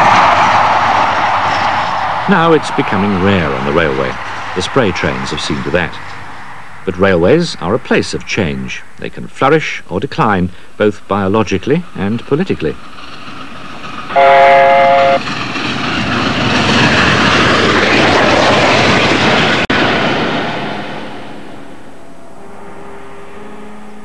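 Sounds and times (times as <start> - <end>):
diesel train rushing past: 0.0 - 24.0
train horn blast: 14.1 - 15.2, 22.1 - 24.0.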